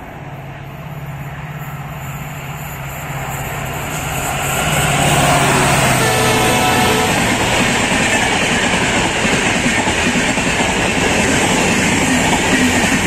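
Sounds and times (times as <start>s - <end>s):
train approaching at speed: 0.0s - 13.0s.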